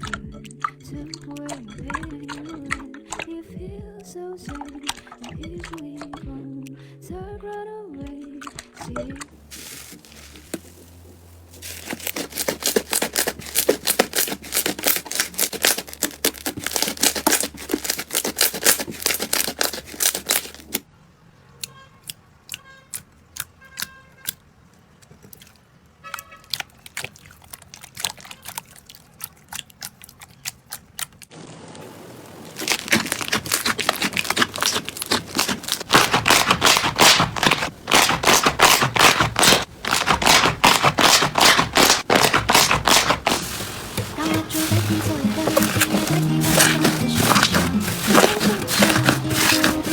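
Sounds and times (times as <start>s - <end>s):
slime crackling and popping: 9.5s - 20.8s, 32.4s - 49.9s.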